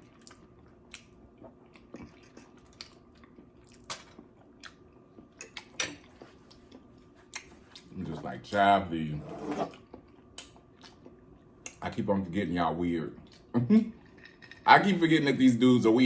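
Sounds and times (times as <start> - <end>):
person chewing food: 0.0 - 7.9, 9.7 - 11.8.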